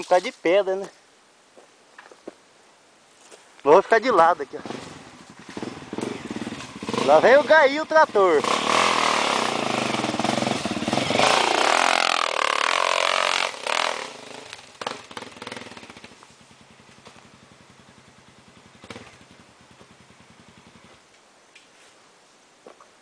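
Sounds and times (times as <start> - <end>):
dirt bike engine revving: 4.4 - 21.0
faint low engine pulse: 14.6 - 21.0.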